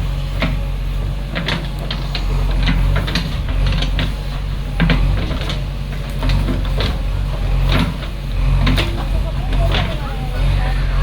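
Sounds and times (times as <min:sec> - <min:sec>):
diesel engine droning: 0:00.0 - 0:11.0
metal parts knocking and clanking: 0:01.3 - 0:10.1.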